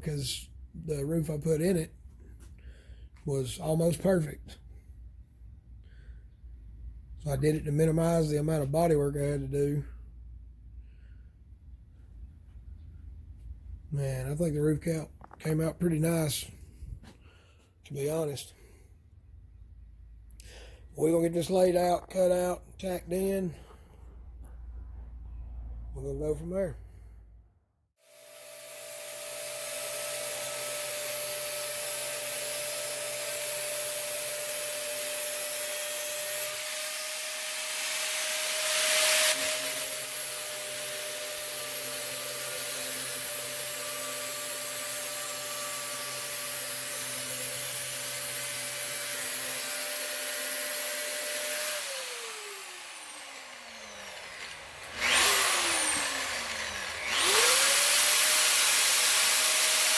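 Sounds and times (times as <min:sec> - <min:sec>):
power tool cutting sheet metal: 0:28.0 - 0:59.9.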